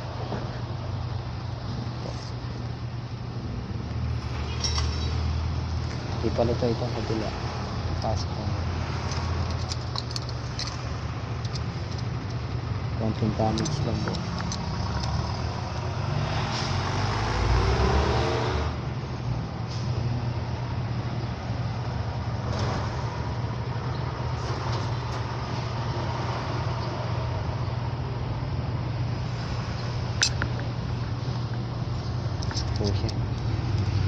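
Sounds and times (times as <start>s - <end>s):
steady low road hum: 0.0s - 34.0s
vehicle passing: 4.0s - 20.8s, 30.8s - 34.0s.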